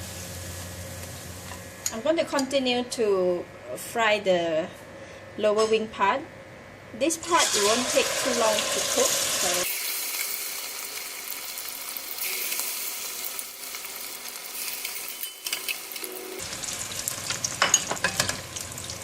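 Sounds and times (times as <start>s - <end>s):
chicken deep-frying in oil: 7.3s - 19.0s.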